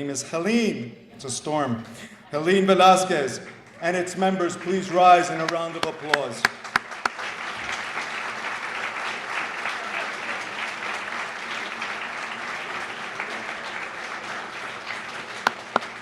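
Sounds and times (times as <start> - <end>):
audience applauding: 3.4 - 16.0.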